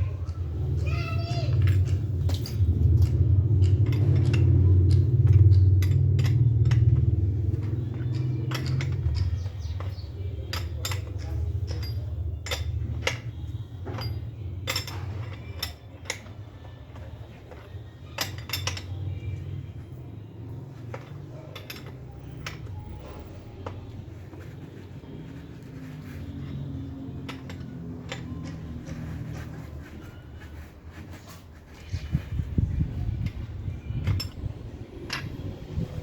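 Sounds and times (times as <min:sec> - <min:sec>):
metal tools clinking: 0:00.0 - 0:36.0
low rumble: 0:31.9 - 0:36.0.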